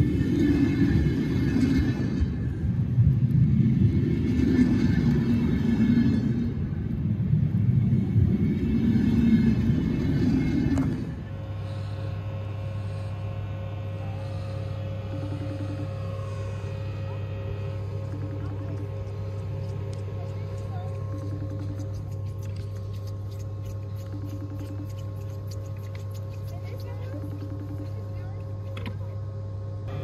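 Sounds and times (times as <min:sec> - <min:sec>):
train rumbling slowly past: 0:00.0 - 0:22.7
electric locomotive humming: 0:00.0 - 0:30.0.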